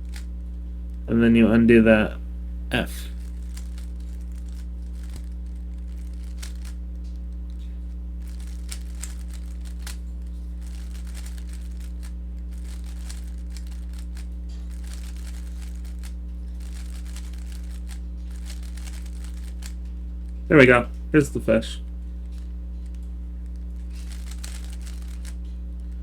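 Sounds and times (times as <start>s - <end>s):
low electrical hum: 0.0s - 26.0s
puzzle cube clicking: 8.3s - 10.0s, 10.6s - 19.7s, 24.0s - 25.4s.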